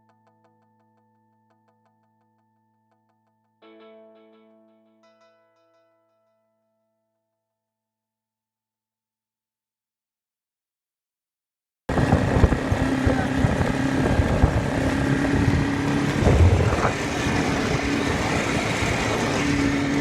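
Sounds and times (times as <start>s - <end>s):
motorcycle engine running: 11.9s - 20.0s.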